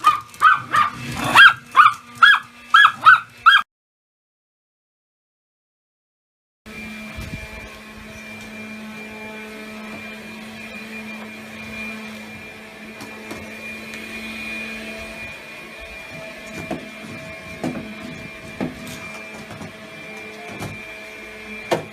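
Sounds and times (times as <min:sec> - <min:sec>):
vacuum cleaner running: 0:00.0 - 0:03.6, 0:06.7 - 0:21.9.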